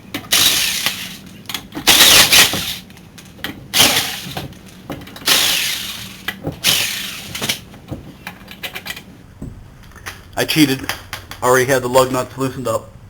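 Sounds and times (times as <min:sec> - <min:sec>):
impact wrench spinning lug nuts: 0:00.2 - 0:02.9, 0:03.5 - 0:09.0.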